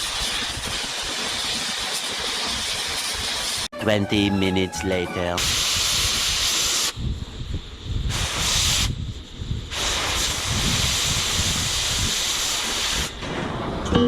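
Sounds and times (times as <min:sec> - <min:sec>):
cutting torch hissing: 0:00.0 - 0:03.7, 0:04.6 - 0:13.8.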